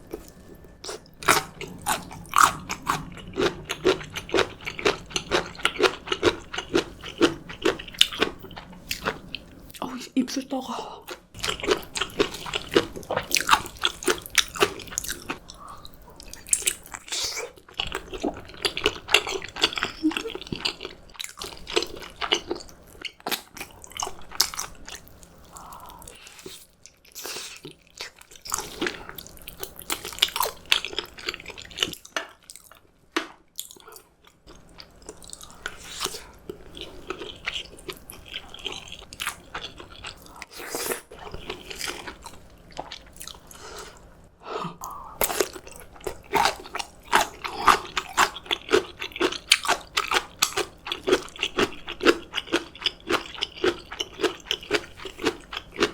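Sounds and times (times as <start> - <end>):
person chewing and biting food: 0.0 - 9.5, 44.8 - 55.9.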